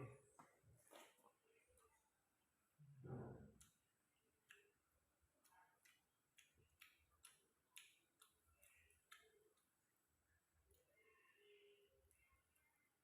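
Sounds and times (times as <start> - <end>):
person chewing food: 3.5 - 9.8
mouth clicks and smacks: 5.4 - 9.7.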